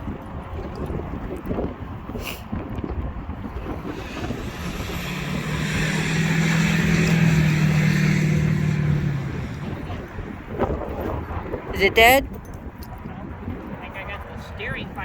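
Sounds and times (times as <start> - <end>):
wind buffeting microphone: 0.0 - 15.0
toy car motor whining: 3.6 - 9.9.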